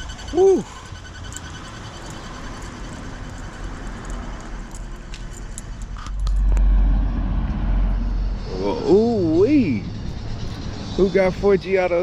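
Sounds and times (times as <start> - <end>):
rapid high squeak: 0.0 - 5.0
car engine idling: 0.0 - 12.0.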